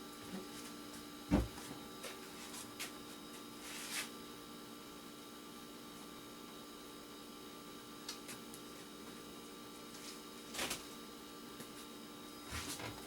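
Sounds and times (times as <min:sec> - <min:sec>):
thump on work surface: 0:01.3 - 0:01.6.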